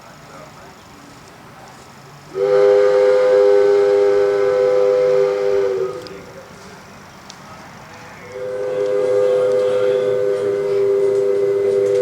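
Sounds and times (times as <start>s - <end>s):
train whistle two-note chord: 2.4s - 6.1s, 8.4s - 12.0s.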